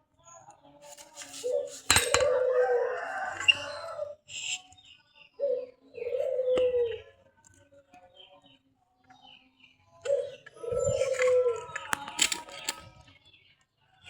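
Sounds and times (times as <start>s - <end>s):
rooster crowing: 2.2s - 4.2s.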